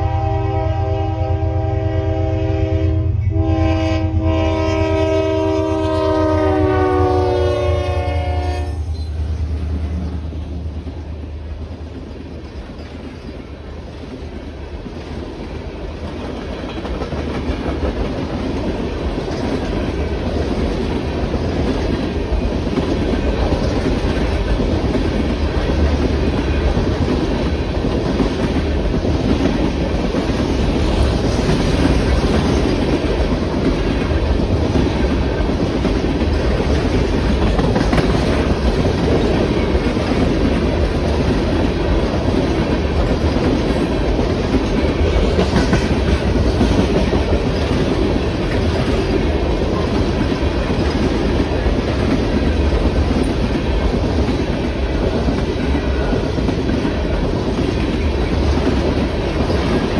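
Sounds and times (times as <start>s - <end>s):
locomotive horn: 0.0s - 9.0s
train wheels rushing on rails: 0.0s - 59.9s.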